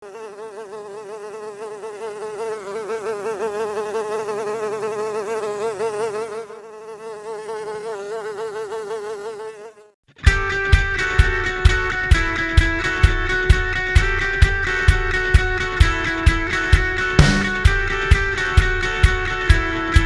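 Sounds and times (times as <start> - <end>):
fly buzzing: 0.0 - 10.0
guitar music: 10.2 - 20.0.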